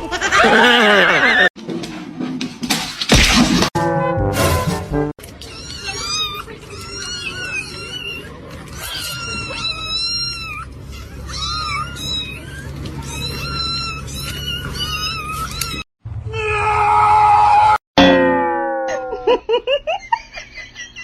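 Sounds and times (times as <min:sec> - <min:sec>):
cat meowing: 0:05.4 - 0:15.8.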